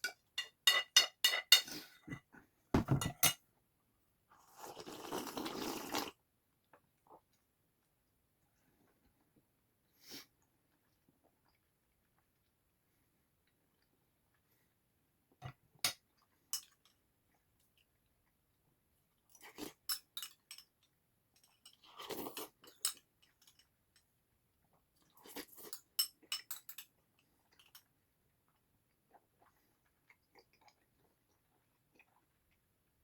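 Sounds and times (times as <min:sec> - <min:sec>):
chewing: 0:27.0 - 0:32.7.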